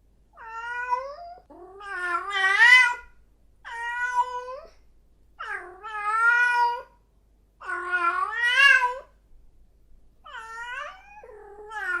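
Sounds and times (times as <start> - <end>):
cat meowing: 0.4 - 3.1, 3.7 - 4.8, 5.4 - 7.0, 7.6 - 9.1, 10.2 - 12.0.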